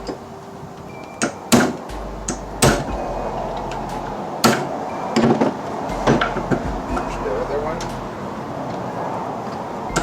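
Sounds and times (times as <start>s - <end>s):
metal knocks and clanks: 1.5s - 8.1s
steady low hum: 1.9s - 4.9s, 5.8s - 8.4s.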